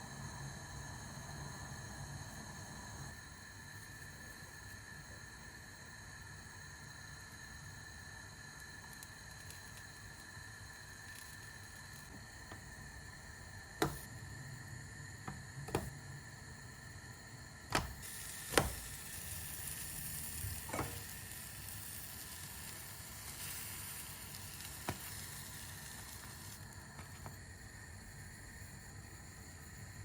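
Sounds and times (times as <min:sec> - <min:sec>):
food sizzling in a frying pan: 0:17.7 - 0:27.2.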